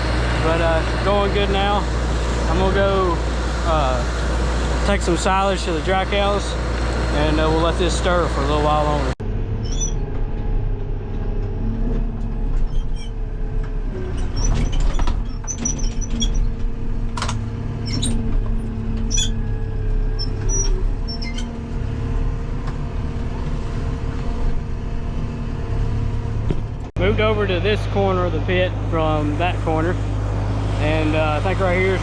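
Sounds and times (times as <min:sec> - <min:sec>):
farm vehicle engine droning: 0:00.0 - 0:32.0
short squeaks and clicks: 0:09.6 - 0:21.7.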